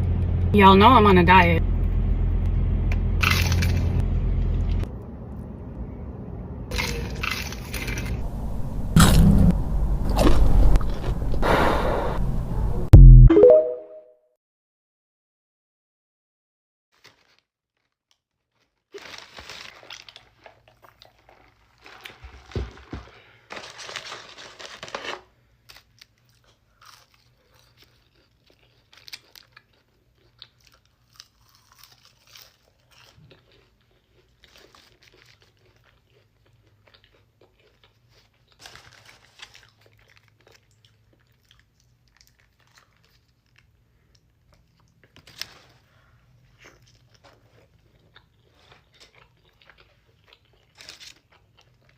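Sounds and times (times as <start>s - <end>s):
crunchy bites and chewing: 3.2s - 4.0s, 6.7s - 8.2s, 9.0s - 9.4s, 17.0s - 51.9s.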